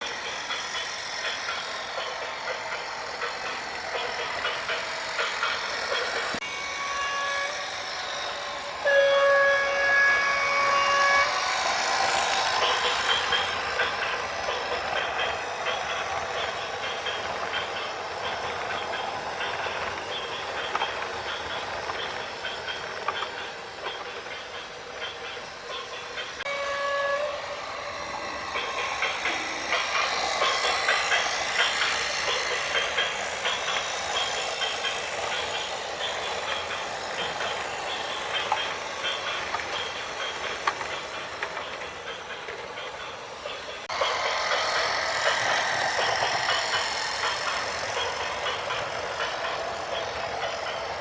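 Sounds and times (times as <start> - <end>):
horn blasts: 6.5 - 7.6, 8.8 - 11.4, 26.5 - 27.5
steady noisy background: 11.2 - 26.4, 27.4 - 51.0.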